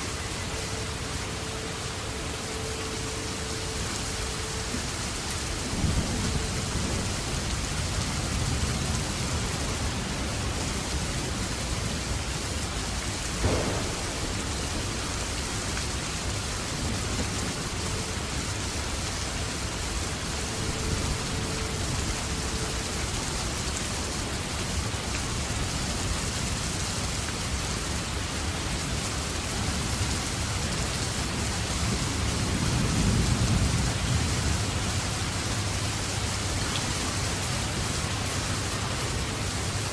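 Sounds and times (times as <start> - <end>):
steady rain: 0.0 - 39.9
rumble of thunder: 13.3 - 18.1.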